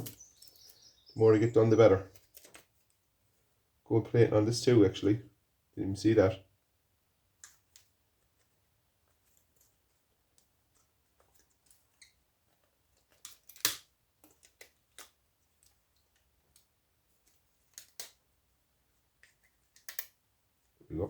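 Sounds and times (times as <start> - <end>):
parts being handled: 0.0 - 0.9, 2.1 - 3.5, 7.3 - 20.8.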